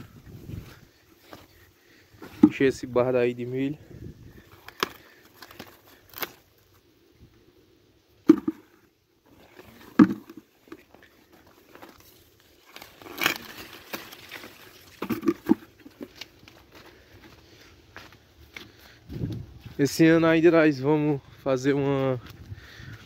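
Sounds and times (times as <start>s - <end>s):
dry corn leaves rustling: 0.0s - 6.9s, 8.4s - 20.8s
corn ears snapping off stalks: 4.5s - 6.5s, 11.7s - 16.6s.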